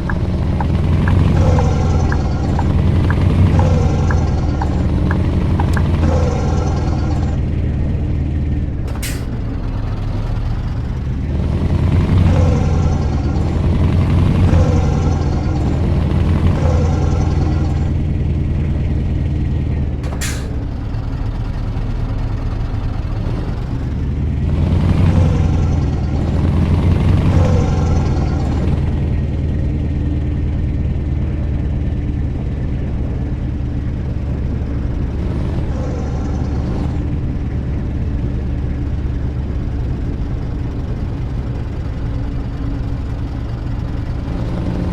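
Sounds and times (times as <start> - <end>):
truck engine revving: 0.0 - 29.6, 32.4 - 44.9.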